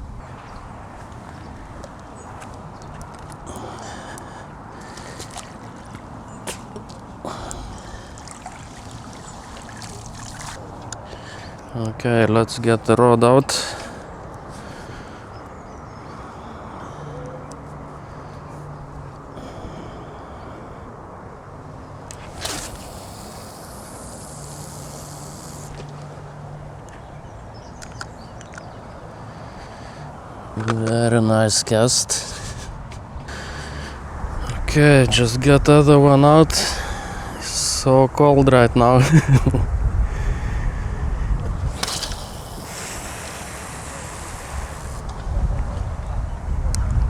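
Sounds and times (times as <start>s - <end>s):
steady low hum: 0.0s - 46.6s
water trickling and splashing: 1.1s - 11.7s, 21.9s - 26.7s, 41.6s - 45.1s
fishing rod swish: 6.5s - 6.8s, 22.1s - 26.0s, 41.7s - 45.0s
line running off reel: 22.1s - 26.2s, 41.6s - 45.2s.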